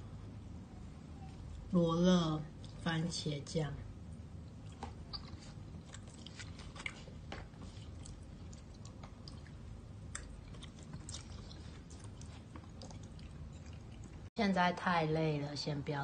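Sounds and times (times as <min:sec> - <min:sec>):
person chewing: 0:04.5 - 0:14.3.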